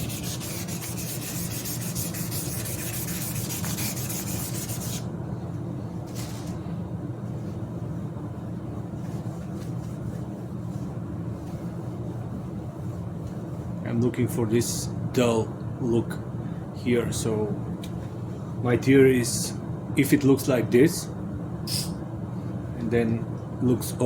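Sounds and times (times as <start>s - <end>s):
sandpaper rubbing back and forth: 0.0s - 5.0s
steady low hum: 0.0s - 24.0s.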